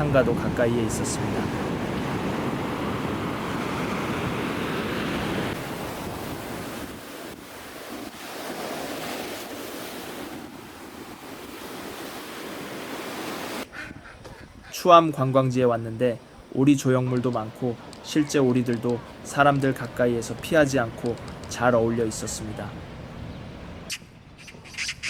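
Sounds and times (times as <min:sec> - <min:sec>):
sea waves breaking on beach: 0:00.0 - 0:13.7, 0:15.2 - 0:23.9
wind buffeting microphone: 0:00.0 - 0:14.8.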